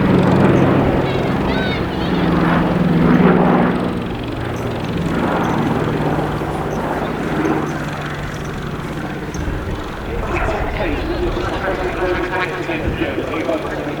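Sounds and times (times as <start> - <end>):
aircraft propeller engines droning: 0.0 - 14.0.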